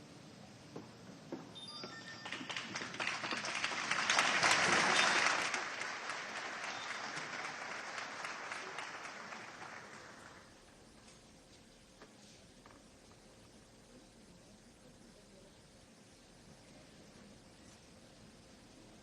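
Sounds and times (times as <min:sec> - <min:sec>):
audience applauding: 0:02.0 - 0:10.6.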